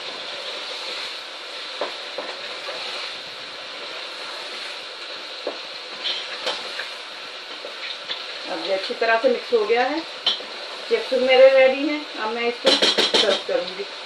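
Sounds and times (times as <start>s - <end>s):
food sizzling in a pot: 0.0s - 14.0s
spoon knocking against pot: 12.7s - 13.4s.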